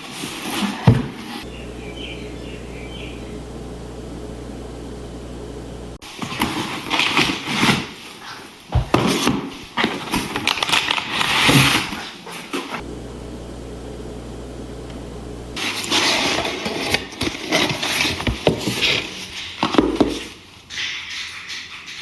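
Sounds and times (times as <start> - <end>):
steady low hum: 1.4 - 6.0, 12.8 - 15.6.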